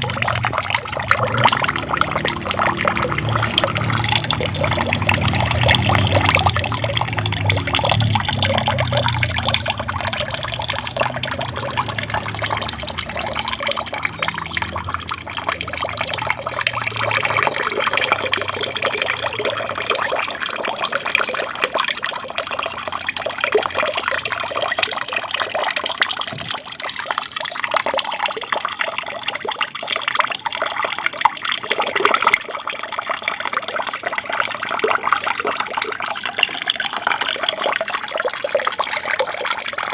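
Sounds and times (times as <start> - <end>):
deep rumble: 0.0 - 14.0
small waterfall splashing: 0.0 - 39.9.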